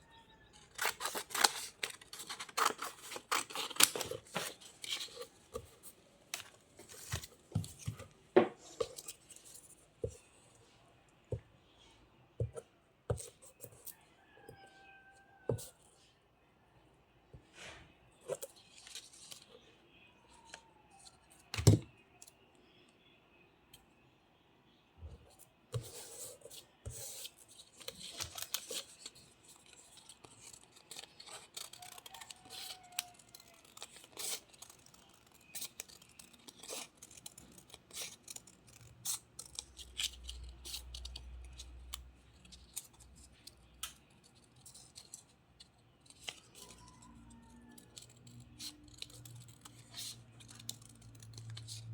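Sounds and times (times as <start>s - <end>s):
scissors snipping paper: 0.6s - 5.6s, 26.9s - 45.3s, 45.9s - 51.9s
paper handling: 0.6s - 9.4s, 26.8s - 51.9s.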